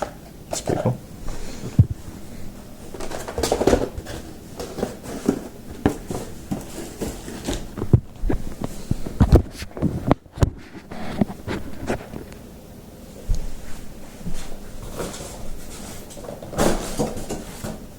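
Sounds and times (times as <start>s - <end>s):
packaging rustling: 2.8s - 10.0s
knocks and thumps: 2.9s - 12.1s.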